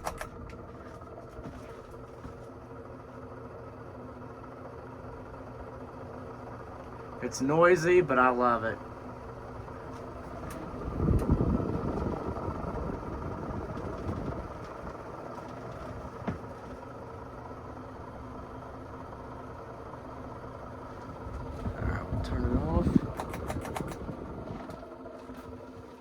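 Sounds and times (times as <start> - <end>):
fan click: 0.0 - 2.5, 9.3 - 17.0, 20.3 - 25.8
ceiling fan humming: 0.0 - 26.0.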